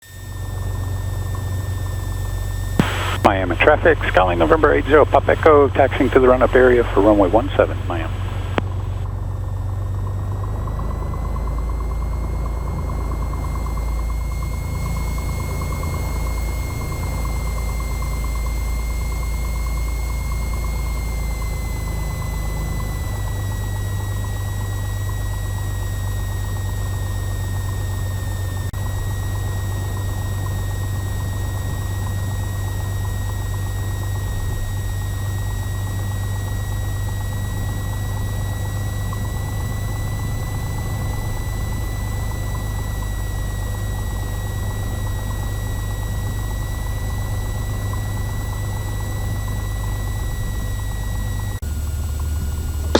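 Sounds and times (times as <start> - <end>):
propeller plane engine drone: 0.0 - 52.9
thin steady whine: 0.0 - 52.9.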